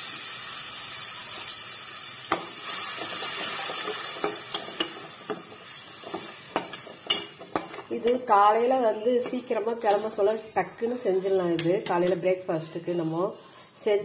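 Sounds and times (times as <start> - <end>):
paste sizzling in hot oil: 0.0 - 7.8
metal spoon scraping a pot: 2.7 - 8.2.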